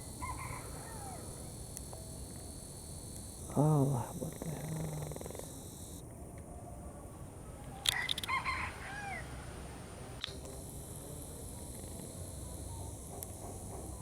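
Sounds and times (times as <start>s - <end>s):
high insect buzz: 0.0s - 6.1s, 10.2s - 14.0s.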